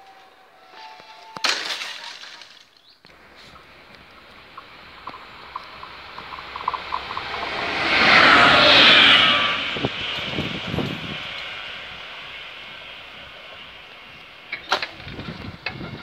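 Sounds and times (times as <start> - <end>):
wheel-on-rail noise: 0.0 - 16.0
diesel locomotive passing: 3.1 - 16.0.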